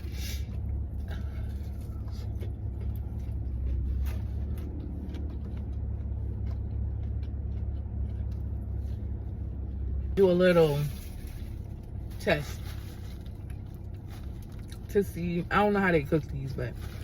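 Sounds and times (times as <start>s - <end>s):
car engine idling: 0.0s - 17.0s
food packaging rustling: 10.8s - 14.9s.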